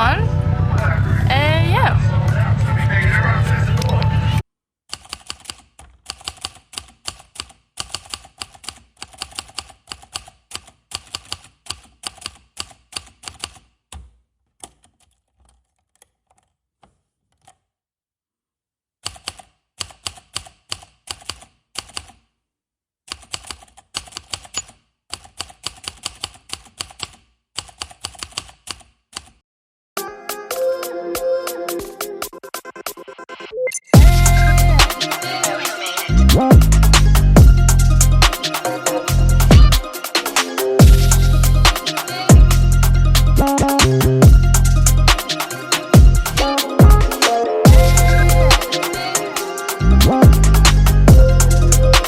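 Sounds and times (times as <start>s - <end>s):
keyboard typing clicks: 23.1s - 29.4s.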